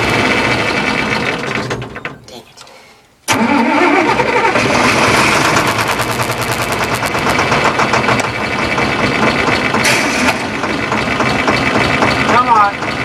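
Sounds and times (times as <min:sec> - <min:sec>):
starter motor cranking: 0:03.3 - 0:13.0
engine firing in sharp pops: 0:05.3 - 0:13.0.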